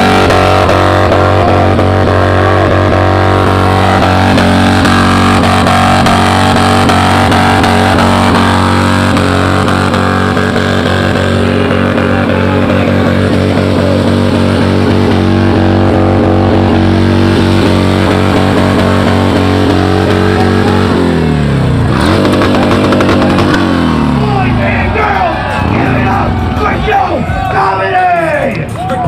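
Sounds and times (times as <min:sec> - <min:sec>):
motorcycle engine running: 0:00.0 - 0:27.6
music: 0:24.5 - 0:29.0.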